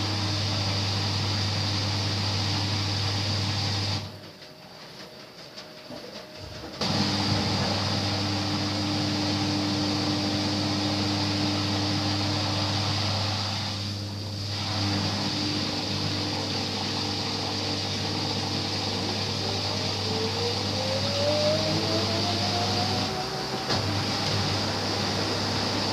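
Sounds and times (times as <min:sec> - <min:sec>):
washing machine spinning: 0:00.0 - 0:25.9
rising drum whine: 0:17.4 - 0:25.9.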